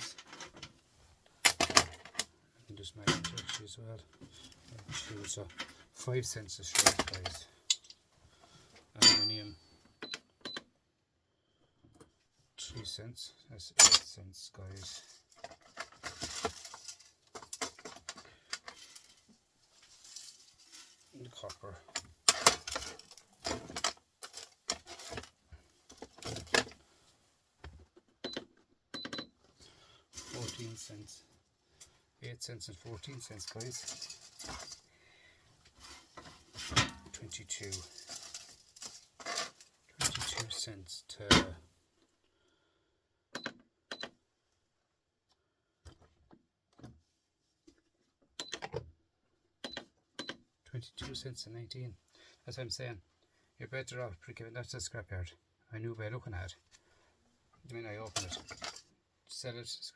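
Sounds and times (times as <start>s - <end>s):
scrap copper clinking and rattling: 14.8s - 26.8s, 33.0s - 34.8s, 35.8s - 40.6s, 58.1s - 58.9s.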